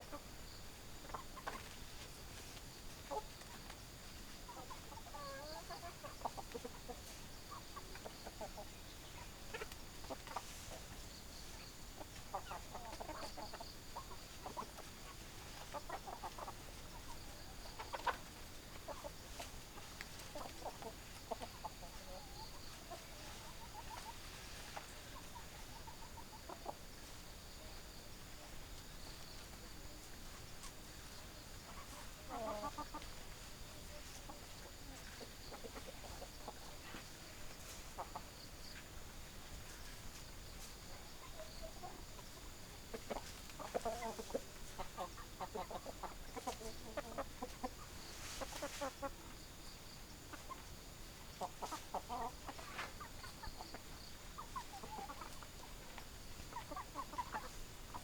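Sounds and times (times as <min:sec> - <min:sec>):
hens clucking: 0:00.0 - 0:58.0.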